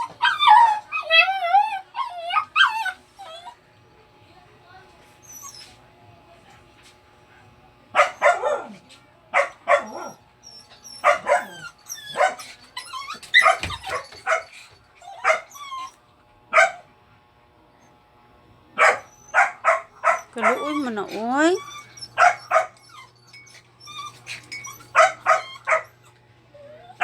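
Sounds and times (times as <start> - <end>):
dog crying and barking: 0.0 - 3.6, 9.4 - 16.8, 18.8 - 26.0.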